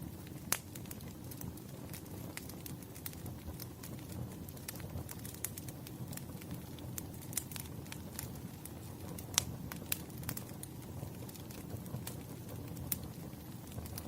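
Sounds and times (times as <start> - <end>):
logs crackling and popping: 0.0 - 14.0
low fire rumble: 0.0 - 14.0.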